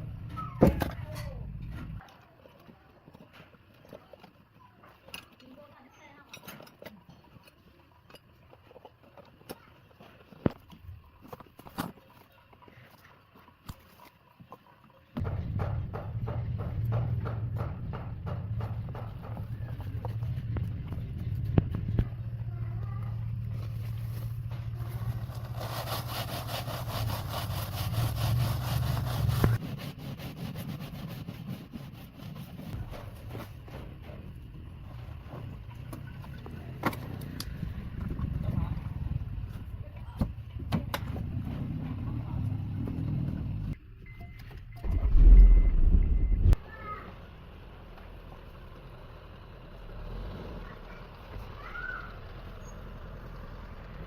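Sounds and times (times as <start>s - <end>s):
low machine hum: 15.2s - 26.0s, 32.8s - 46.6s
rhythmic scraping strokes on metal: 24.8s - 32.8s.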